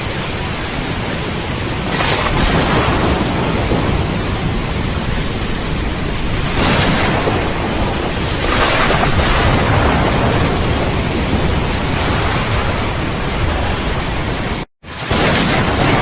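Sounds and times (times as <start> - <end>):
heavy rain: 0.0 - 16.0
deep rumble of thunder: 0.1 - 16.0.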